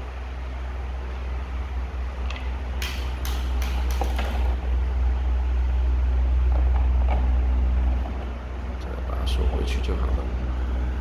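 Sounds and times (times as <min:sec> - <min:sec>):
electric fan running: 0:00.0 - 0:11.0
plastic fan cover clicks and knocks: 0:02.3 - 0:04.6.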